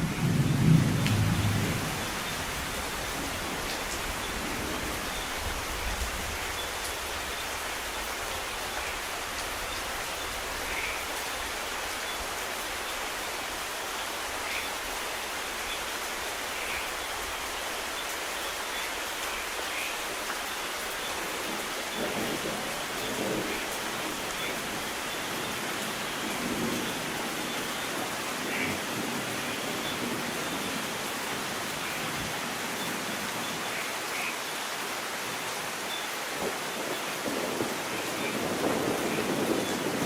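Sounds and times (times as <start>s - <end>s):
low rumbles of thunder: 0.0s - 6.3s, 36.4s - 40.0s
steady rain falling: 0.0s - 40.0s.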